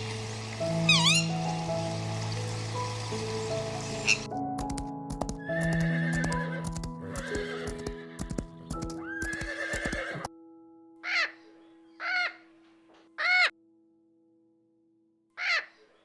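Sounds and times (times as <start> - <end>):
soft background music: 0.0 - 15.5
horse whinnying: 0.9 - 1.3, 5.5 - 10.3
hooves clip-clopping: 4.0 - 10.3.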